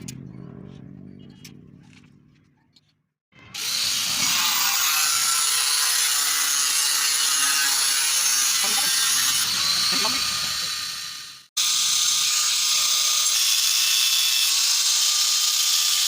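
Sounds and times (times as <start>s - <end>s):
power tool running: 3.4s - 16.0s.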